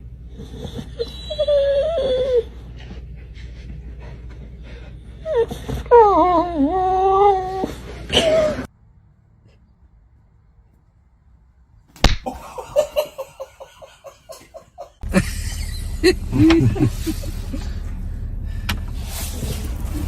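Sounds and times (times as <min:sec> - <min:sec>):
animal whining cries: 0:00.4 - 0:02.7, 0:05.2 - 0:08.7.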